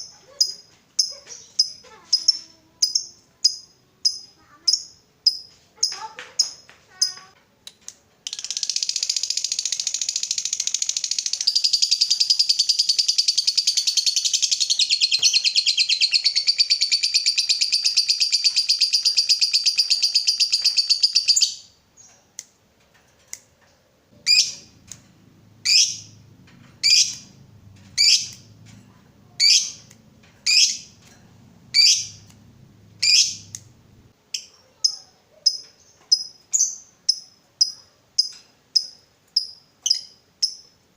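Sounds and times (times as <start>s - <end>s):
lovebird chattering trill: 8.3s - 22.1s, 24.2s - 24.9s, 25.6s - 26.2s, 26.8s - 27.4s, 28.0s - 28.5s, 29.2s - 31.0s, 31.7s - 32.3s, 33.0s - 33.7s
lovebird sharp calls: 24.2s - 24.7s, 25.6s - 26.1s, 26.8s - 27.3s, 28.0s - 28.5s, 29.4s - 31.0s, 31.7s - 32.3s, 33.0s - 33.6s.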